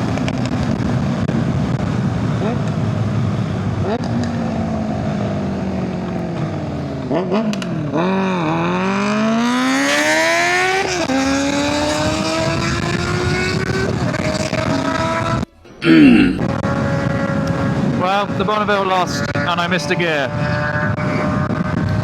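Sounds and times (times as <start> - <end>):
motorcycle engine accelerating: 0.0 - 15.6, 16.2 - 22.0.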